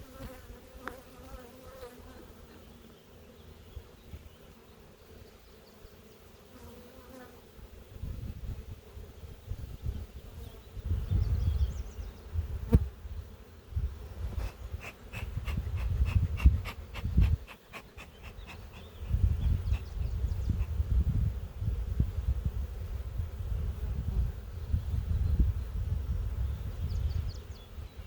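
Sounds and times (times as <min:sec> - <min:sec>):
bees buzzing: 0:00.0 - 0:07.4, 0:12.5 - 0:21.0.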